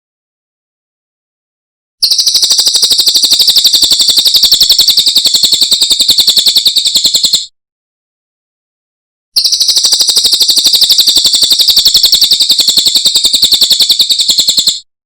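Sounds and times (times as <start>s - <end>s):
bird high rapid trill: 2.0s - 7.5s, 9.4s - 14.8s.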